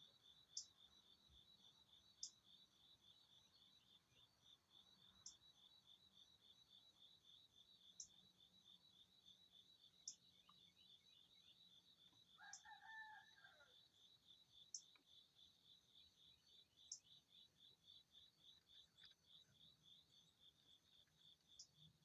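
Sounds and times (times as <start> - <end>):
insects chirping: 0.0 - 22.0
distant rooster crowing: 12.4 - 13.8.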